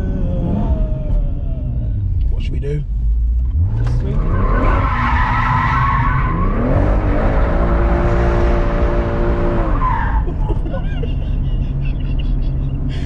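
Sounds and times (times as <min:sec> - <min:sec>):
car engine revving hard: 0:03.6 - 0:10.0.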